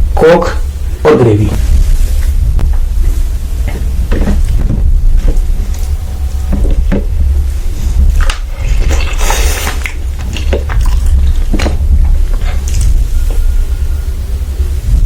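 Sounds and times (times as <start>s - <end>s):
low rumble: 0.0s - 15.0s
crackly rustle: 1.6s - 15.0s
eating noises: 2.0s - 13.7s.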